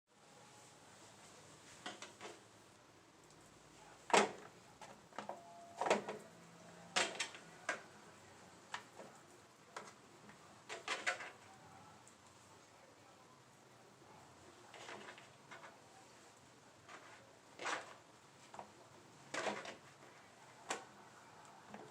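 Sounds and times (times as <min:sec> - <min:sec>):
objects knocking and clicking: 0:10.7 - 0:11.4, 0:19.3 - 0:20.0.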